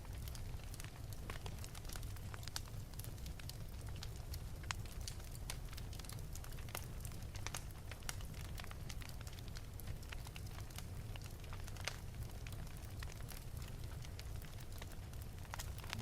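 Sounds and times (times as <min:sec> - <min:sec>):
wood fire crackling and popping: 0:00.0 - 0:16.0
steady low rumble: 0:15.7 - 0:16.0.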